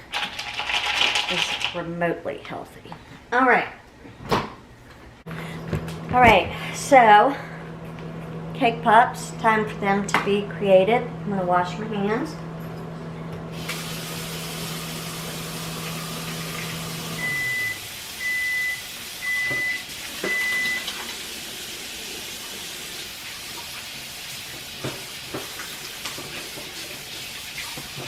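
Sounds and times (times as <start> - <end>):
microwave oven humming: 3.5 - 28.0
microwave beeps: 13.5 - 21.0.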